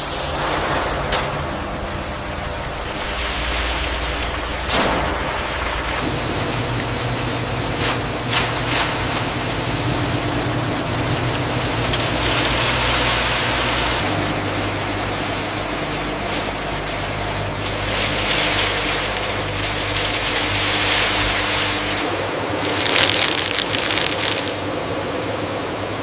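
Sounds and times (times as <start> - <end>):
industrial machinery hum: 0.0 - 26.0
hissing bursts: 21.4 - 24.6.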